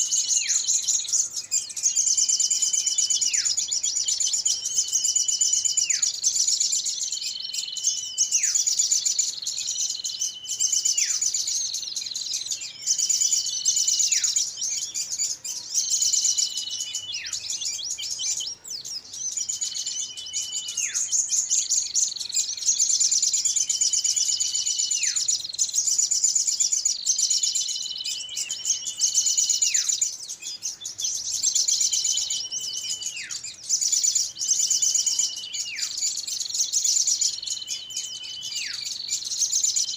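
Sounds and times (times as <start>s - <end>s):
songbirds chattering trills: 0.0s - 39.9s
bird whistle dropping in pitch: 19.3s - 21.1s.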